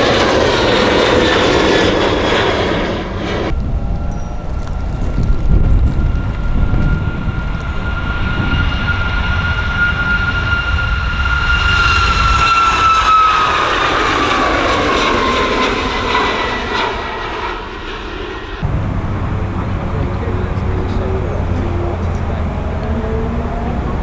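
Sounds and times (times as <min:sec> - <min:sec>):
jet engines roaring and whining: 0:00.0 - 0:24.0.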